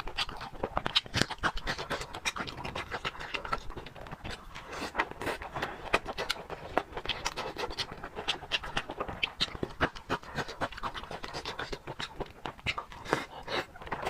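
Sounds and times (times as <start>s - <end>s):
wet chewing sounds: 0.0s - 14.0s.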